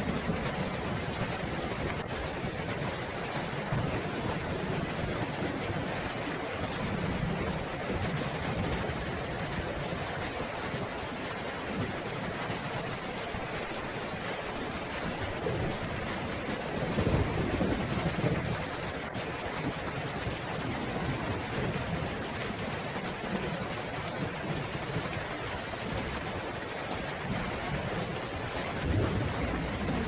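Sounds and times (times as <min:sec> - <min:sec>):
steady rain falling: 0:00.0 - 0:30.0
low roll of thunder: 0:15.2 - 0:22.3, 0:27.3 - 0:30.0.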